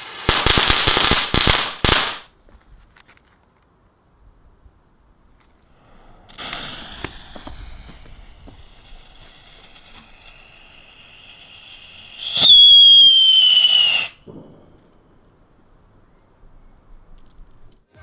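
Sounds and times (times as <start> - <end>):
firework hissing and crackling: 0.0 - 2.3, 5.6 - 14.2
firework shrill whistle: 6.3 - 14.2.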